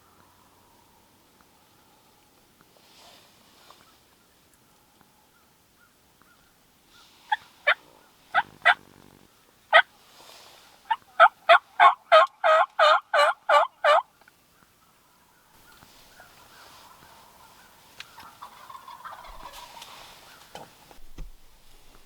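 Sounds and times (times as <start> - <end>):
turkey yelping: 7.3 - 8.8, 10.9 - 14.1, 15.6 - 20.6.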